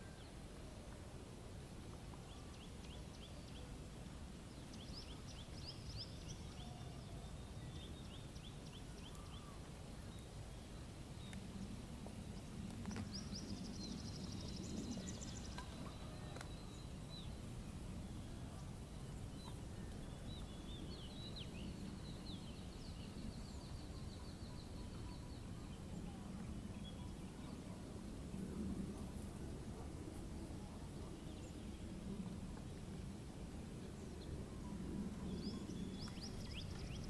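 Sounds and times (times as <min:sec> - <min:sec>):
small birds singing: 0:02.2 - 0:03.8, 0:04.4 - 0:29.0, 0:33.8 - 0:37.0.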